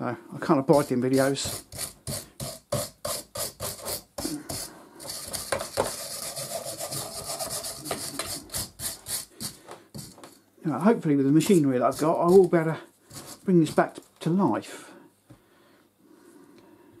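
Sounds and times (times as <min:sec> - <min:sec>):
wire brush scrubbing metal: 0:00.7 - 0:10.2, 0:11.4 - 0:13.9.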